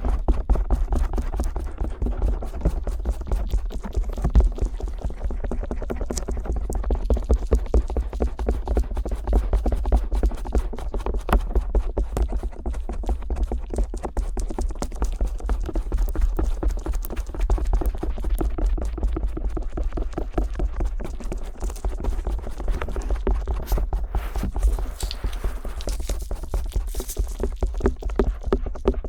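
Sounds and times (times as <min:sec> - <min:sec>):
ear pick scraping on microphone: 0:22.5 - 0:27.5.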